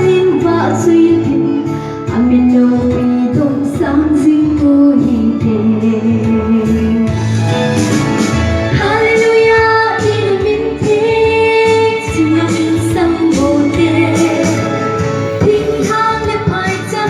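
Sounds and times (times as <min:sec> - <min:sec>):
woman singing long notes: 0:11.8 - 0:17.0.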